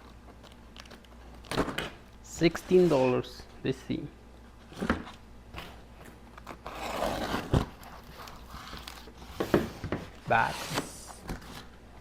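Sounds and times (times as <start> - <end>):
cardboard tearing: 6.4 - 9.1.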